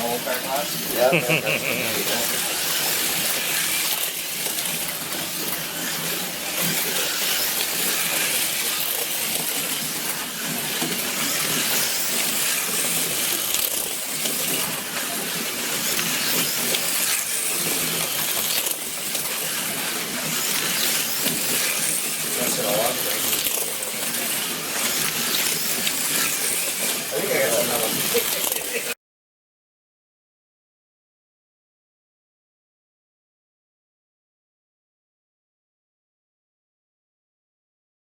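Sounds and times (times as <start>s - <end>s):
slot cars whirring on track: 0.2s - 28.9s.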